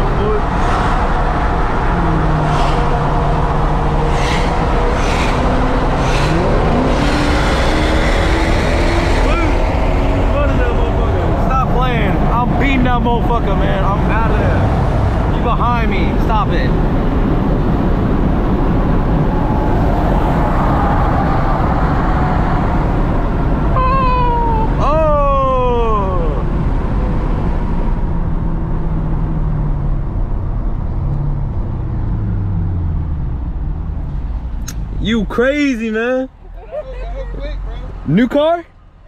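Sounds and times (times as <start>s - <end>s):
car exhaust revving: 0.0s - 15.4s
road and wind noise: 0.0s - 39.0s.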